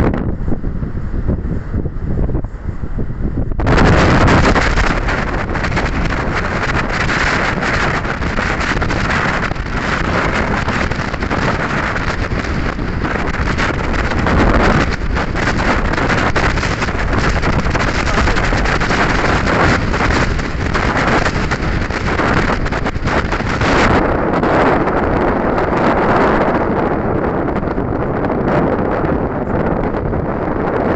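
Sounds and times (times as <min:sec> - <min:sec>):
wind buffeting microphone: 0:00.0 - 0:30.9.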